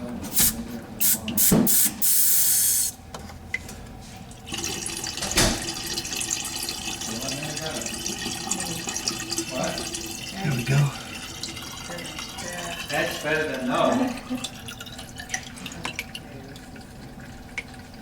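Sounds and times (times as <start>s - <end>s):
water running: 4.3s - 18.0s.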